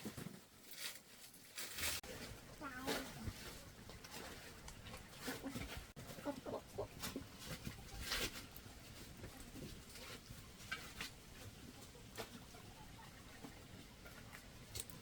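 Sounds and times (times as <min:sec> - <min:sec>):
chickens clucking: 0:04.7 - 0:08.4.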